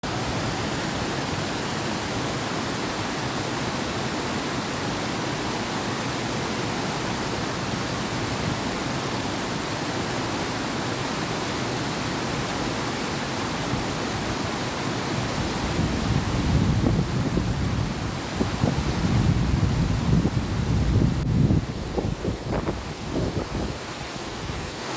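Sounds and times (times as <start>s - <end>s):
river flowing: 0.0s - 24.9s
wind gusts on microphone: 13.5s - 24.9s.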